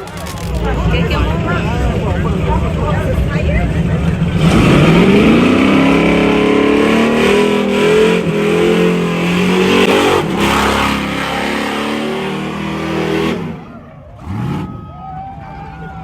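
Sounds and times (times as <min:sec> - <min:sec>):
vehicle engine revving: 0:00.0 - 0:14.9.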